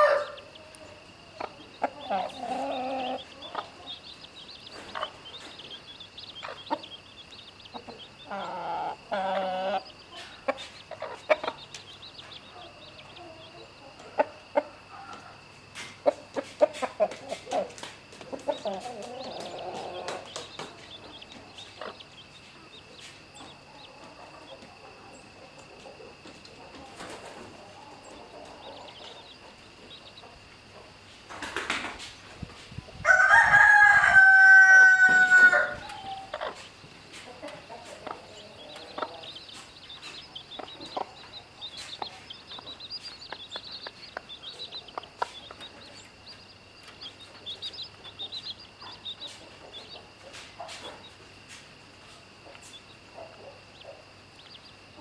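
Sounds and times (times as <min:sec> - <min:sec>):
rooster crowing: 0:00.0 - 0:00.5, 0:33.0 - 0:36.4
chickens clucking softly: 0:00.0 - 0:55.0.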